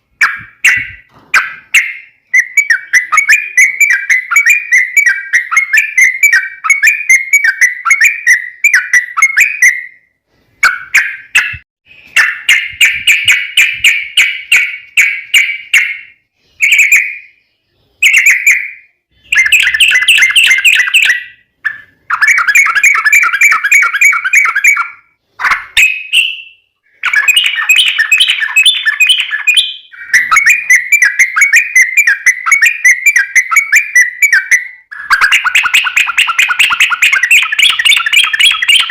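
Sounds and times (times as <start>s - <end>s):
bulbul singing trilled phrases: 0.2s - 10.0s, 25.8s - 38.9s.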